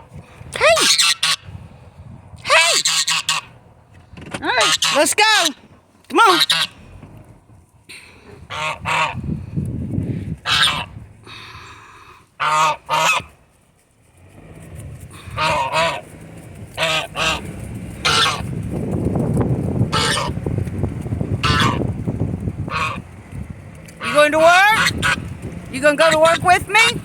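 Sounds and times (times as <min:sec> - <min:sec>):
goose honking: 0:00.6 - 0:01.5, 0:02.4 - 0:03.6, 0:04.4 - 0:06.9, 0:08.5 - 0:09.2, 0:10.4 - 0:10.9, 0:12.4 - 0:13.4, 0:15.2 - 0:16.1, 0:16.7 - 0:18.5, 0:19.8 - 0:20.4, 0:21.4 - 0:21.9, 0:22.6 - 0:23.1, 0:23.9 - 0:27.0
low rumble: 0:01.3 - 0:04.2, 0:06.7 - 0:11.3, 0:14.1 - 0:24.1, 0:24.8 - 0:27.0.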